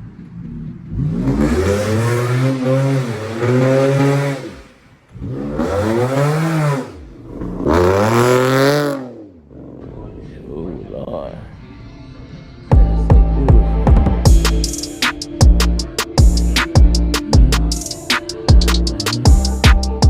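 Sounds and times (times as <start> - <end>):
car engine revving: 0.0 - 10.4, 12.8 - 18.0.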